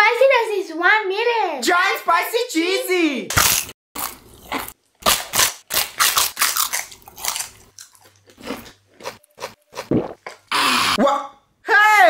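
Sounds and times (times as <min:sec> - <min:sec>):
snack crunching and chewing: 0:03.3 - 0:10.5.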